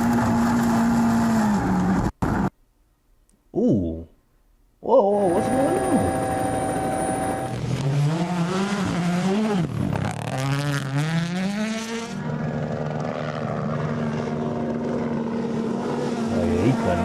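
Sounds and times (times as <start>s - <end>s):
rally car engine revving: 0.0s - 2.5s, 5.2s - 17.0s
steady engine note: 5.1s - 10.1s.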